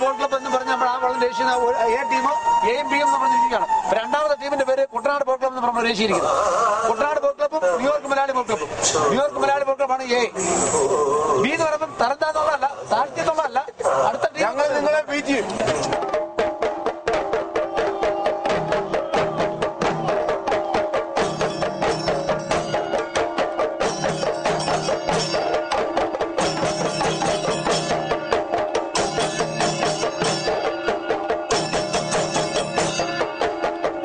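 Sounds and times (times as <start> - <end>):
fast drum or wood-block beat: 14.8 - 34.0.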